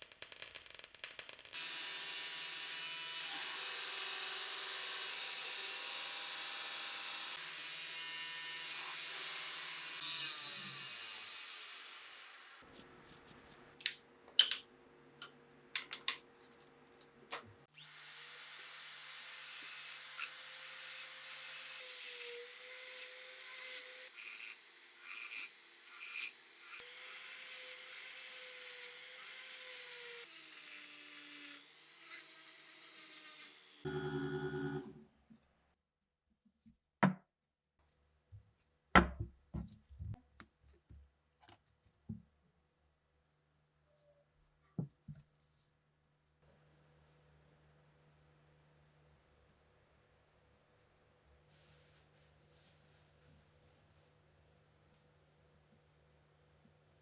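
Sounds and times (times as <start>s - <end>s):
clicks and taps of tools: 13.8s - 17.6s
electric power tool grinding: 17.8s - 35.0s.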